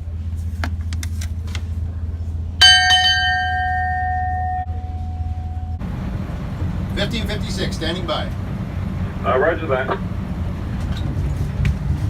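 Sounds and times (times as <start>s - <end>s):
steady low hum: 0.0s - 12.0s
metal bell ringing: 2.6s - 5.8s.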